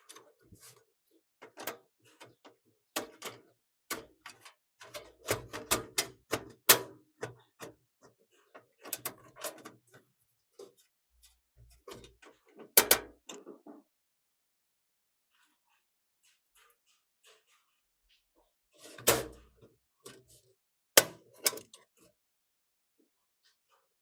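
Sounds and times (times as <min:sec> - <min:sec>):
computer hardware clicking and knocking: 0:12.6 - 0:13.8, 0:21.0 - 0:21.8.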